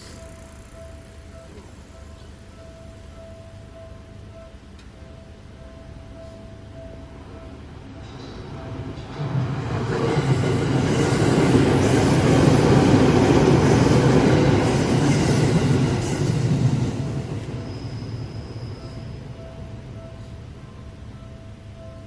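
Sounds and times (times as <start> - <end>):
train wheels rumbling on rails: 7.8 - 20.4.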